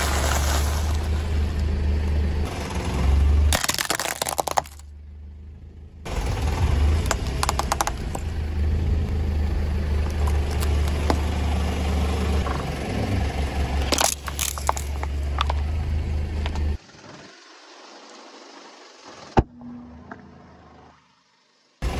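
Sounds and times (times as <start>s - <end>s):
car engine rumbling: 0.0s - 21.9s
plastic cracking under tyre: 3.5s - 4.8s, 7.1s - 8.1s, 13.9s - 15.6s.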